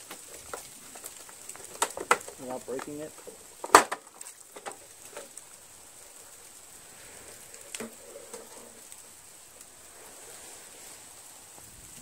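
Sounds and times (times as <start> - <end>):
engine parts clicking and knocking: 0.0 - 5.4
faint hiss: 0.0 - 12.0.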